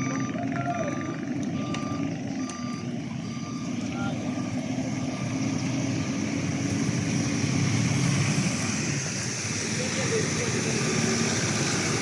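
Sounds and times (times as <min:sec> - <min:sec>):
reversing alarm beeping: 0:00.0 - 0:06.6
heavy vehicle engine rumbling: 0:00.0 - 0:12.0.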